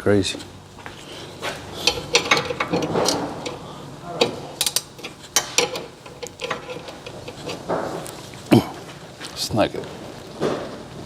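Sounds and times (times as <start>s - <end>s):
hand ratchet clicking: 4.6s - 7.6s.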